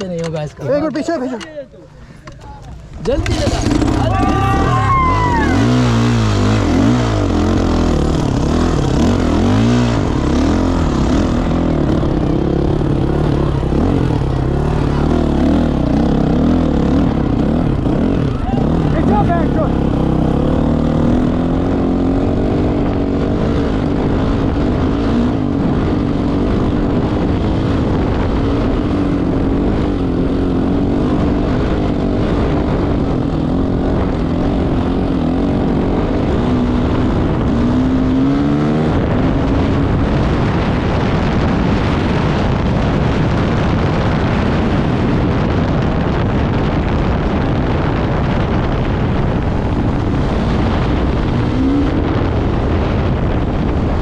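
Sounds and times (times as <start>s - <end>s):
wind on microphone: 2.1s - 54.0s
motorcycle engine revving: 2.7s - 54.0s.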